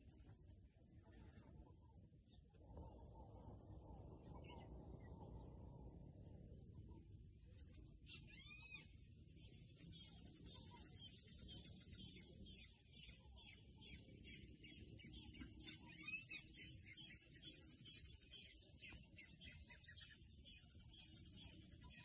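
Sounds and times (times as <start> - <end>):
low background rumble: 0.0 - 11.3
small birds chirping: 0.0 - 22.0.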